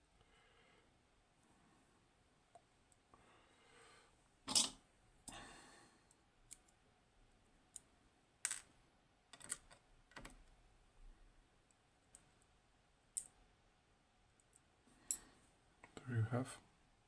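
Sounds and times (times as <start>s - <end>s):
metal lock parts clicking: 4.5s - 4.8s, 9.3s - 10.4s.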